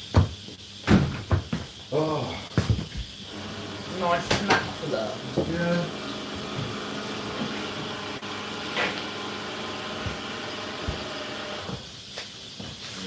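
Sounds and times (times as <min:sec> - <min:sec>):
dishwasher spraying water: 0:03.2 - 0:12.9.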